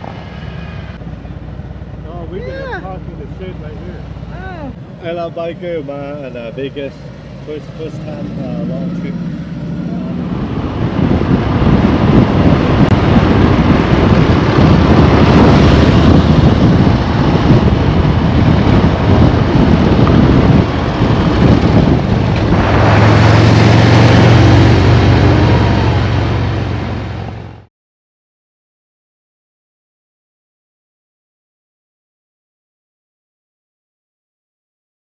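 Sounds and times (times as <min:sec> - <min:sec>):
motorcycle engine rumbling: 0:00.0 - 0:27.7
wind rushing over microphone: 0:02.2 - 0:27.7.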